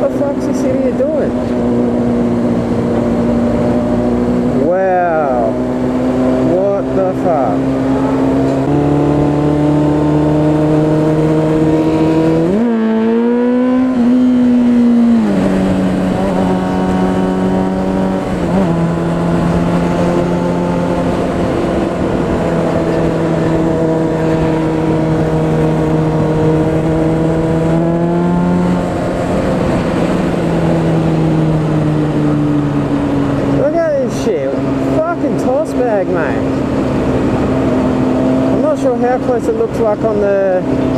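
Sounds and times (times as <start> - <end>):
motorcycle engine revving: 0.0 - 40.9
wind rush: 7.4 - 38.6.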